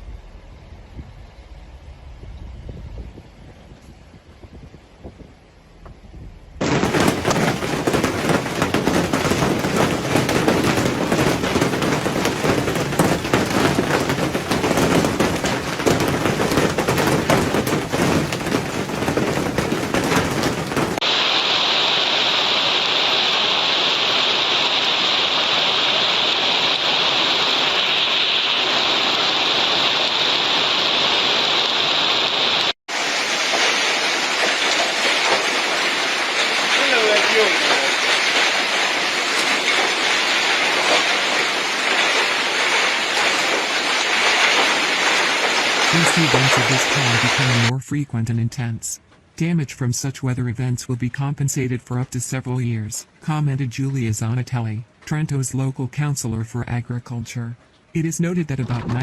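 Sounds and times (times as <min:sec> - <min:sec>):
hailstones pelting hard surfaces: 0:06.6 - 0:21.2, 0:24.8 - 0:47.7
hissing downpour of hail and rain: 0:06.6 - 0:47.7.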